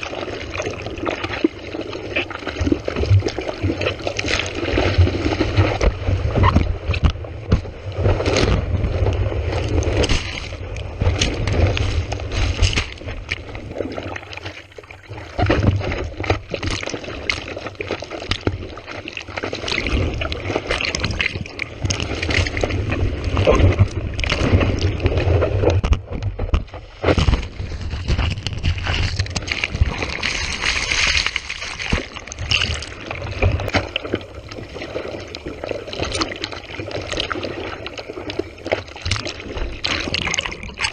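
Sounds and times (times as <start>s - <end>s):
water splashing on camera: 0.0s - 40.9s.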